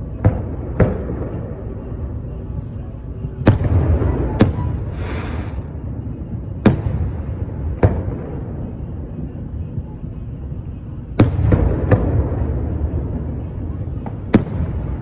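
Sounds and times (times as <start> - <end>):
firework hiss: 0.0 - 9.3
fireworks bangs: 0.0 - 15.0.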